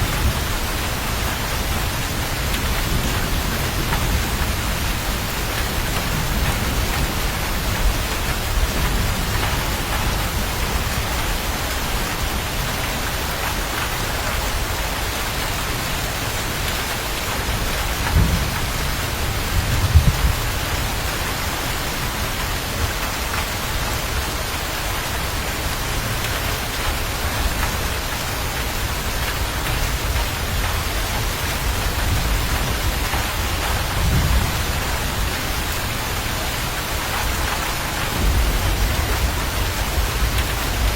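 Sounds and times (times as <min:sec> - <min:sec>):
heavy rain: 0:00.0 - 0:40.9
thunder rumbling: 0:17.4 - 0:21.4, 0:28.9 - 0:40.9.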